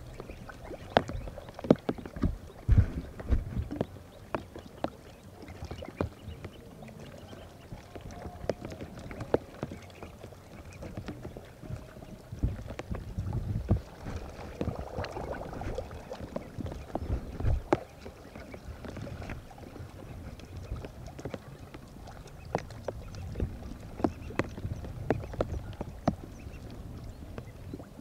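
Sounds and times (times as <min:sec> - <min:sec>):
low thumps: 0:00.0 - 0:04.5, 0:07.8 - 0:27.7.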